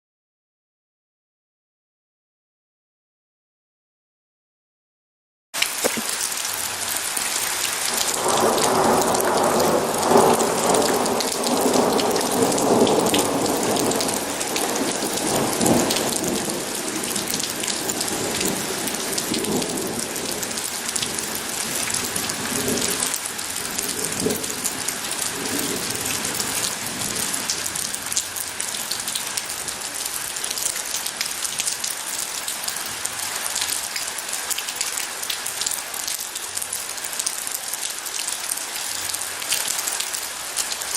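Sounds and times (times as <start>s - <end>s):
heavy rain falling: 5.6s - 40.9s
thunder rumbling: 7.9s - 27.6s.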